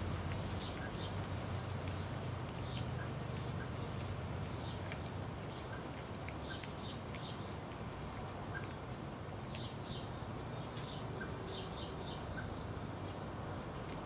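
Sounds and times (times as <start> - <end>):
kittens crunching food: 1.6 - 10.5.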